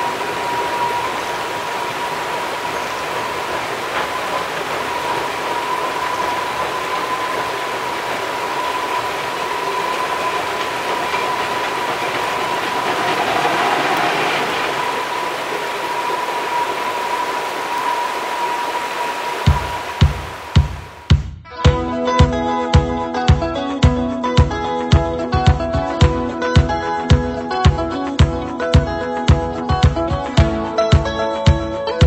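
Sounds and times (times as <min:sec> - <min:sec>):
steady high whine: 0:00.0 - 0:21.0
shallow river rushing: 0:00.0 - 0:21.1
train rolling across steel bridge: 0:00.0 - 0:21.1.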